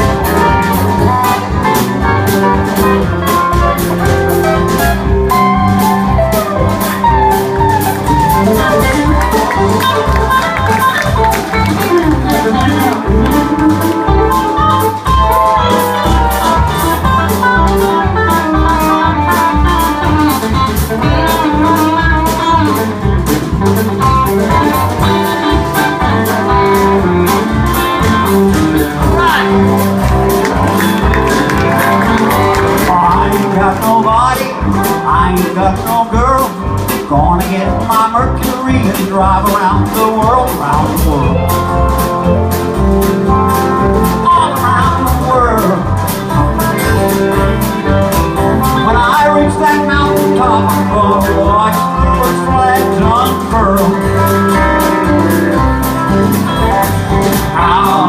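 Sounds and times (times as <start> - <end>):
electric guitar solo: 0.0 - 23.2, 24.0 - 33.6
bass and drum beat: 0.0 - 58.0.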